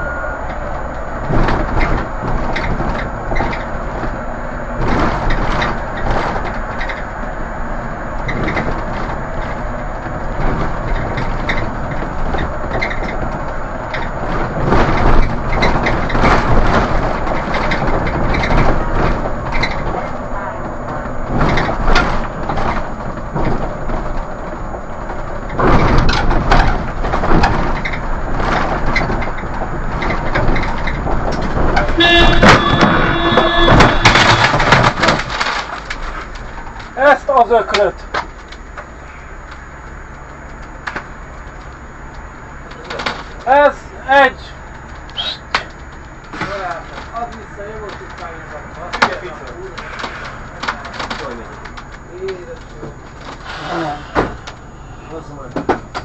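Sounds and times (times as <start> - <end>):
sharp knocks and bangs: 0.0 - 7.1, 8.2 - 20.2, 20.8 - 38.4
road noise: 0.0 - 56.0
vehicle engine: 0.0 - 56.0.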